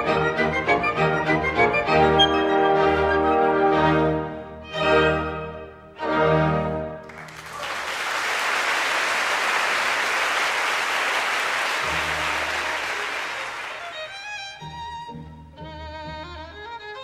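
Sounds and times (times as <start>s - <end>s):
violin melody: 0.0s - 7.0s, 13.7s - 17.0s
orchestra playing: 0.0s - 7.3s, 11.8s - 15.7s
audience applauding: 7.0s - 14.2s.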